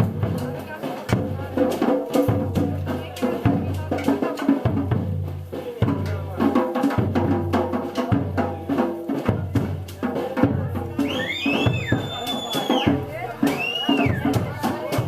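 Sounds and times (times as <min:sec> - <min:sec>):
samba percussion group: 0:00.0 - 0:15.0
bass drums booming: 0:09.3 - 0:15.0.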